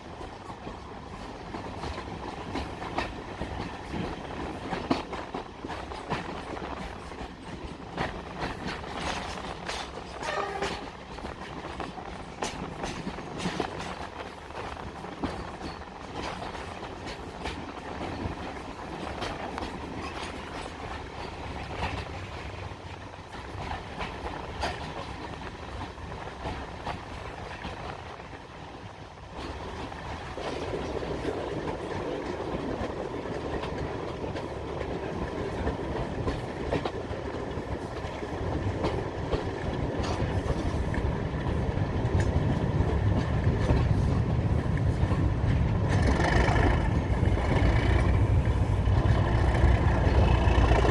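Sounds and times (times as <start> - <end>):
diesel train rumbling: 0.0 - 50.9
wheels clicking over rail joints: 0.2 - 28.4, 29.3 - 50.9.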